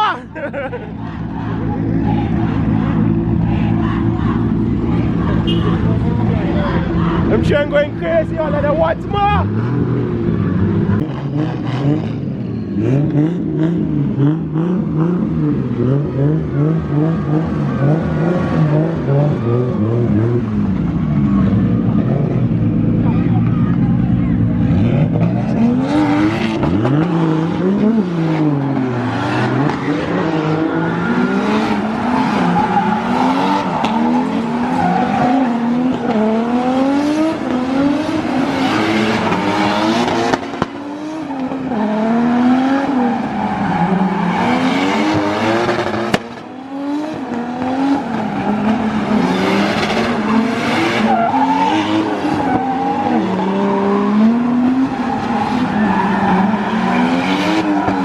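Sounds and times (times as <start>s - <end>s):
car engine revving: 0.0s - 58.0s
tires squealing: 0.0s - 58.0s.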